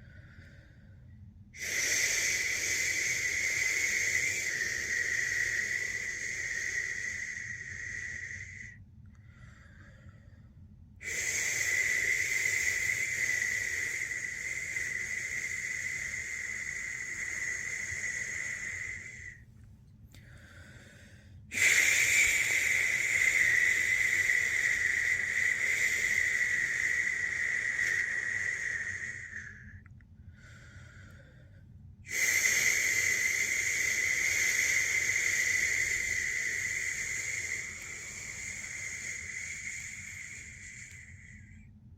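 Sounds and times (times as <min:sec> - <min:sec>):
person shushing: 0:11.1 - 0:19.4, 0:32.1 - 0:41.4.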